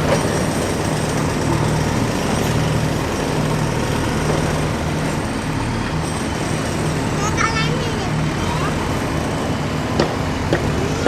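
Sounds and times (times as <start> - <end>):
machine engine humming: 0.0 - 11.0.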